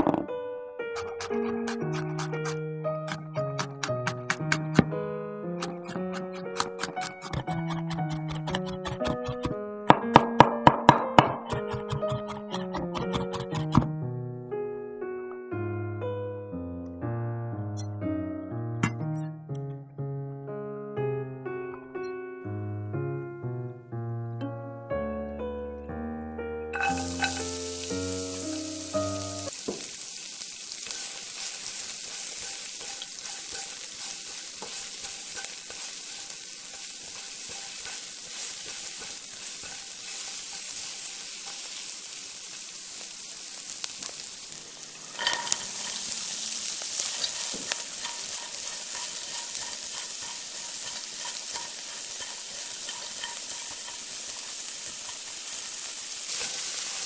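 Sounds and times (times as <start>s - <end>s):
piano music: 0.0s - 56.7s
spatula stirring in a pan: 1.0s - 4.5s, 26.8s - 28.7s, 29.6s - 57.0s
onion sizzling in a pan: 1.0s - 4.9s, 5.6s - 9.6s, 11.4s - 13.9s, 26.8s - 57.0s.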